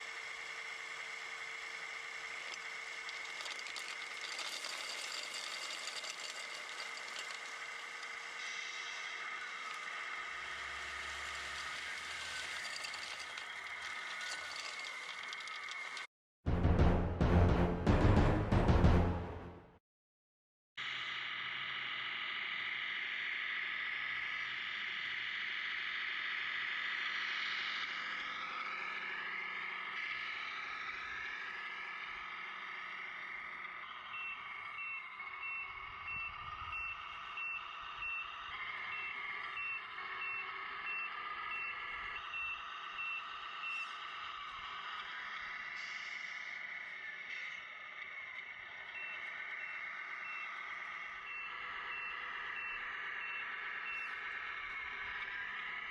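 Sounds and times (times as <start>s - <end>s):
electric motor whine: 0.0s - 16.1s
simulated truck engine through speaker: 20.8s - 55.9s.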